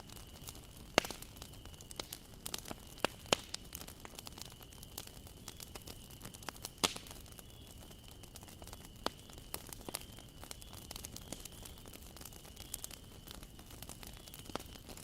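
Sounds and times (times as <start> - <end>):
campfire crackling: 0.0 - 15.0
loud wood snap: 1.0 - 1.2, 6.8 - 7.1.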